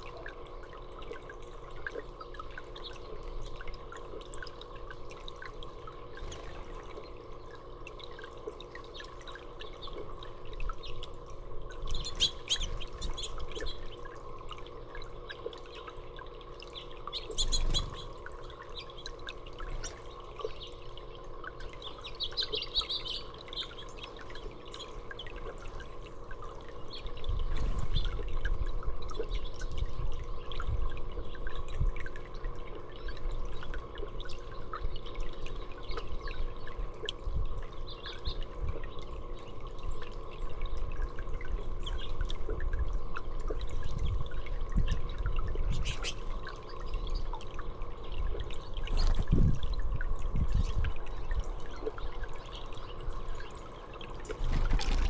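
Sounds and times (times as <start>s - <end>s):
water trickling and dripping: 0.0s - 55.0s
small birds chirping: 11.9s - 14.2s, 16.7s - 25.4s, 45.7s - 47.4s.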